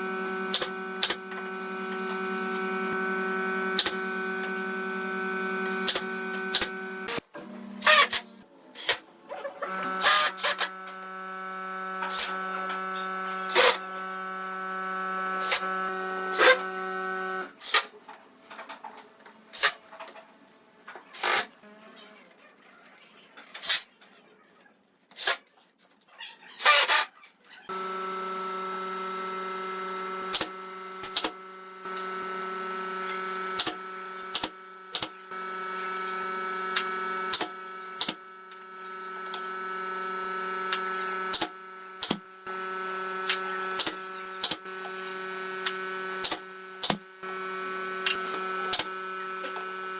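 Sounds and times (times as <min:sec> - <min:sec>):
electric power tool motor: 0:00.0 - 0:09.0, 0:09.6 - 0:17.8, 0:27.7 - 0:49.9.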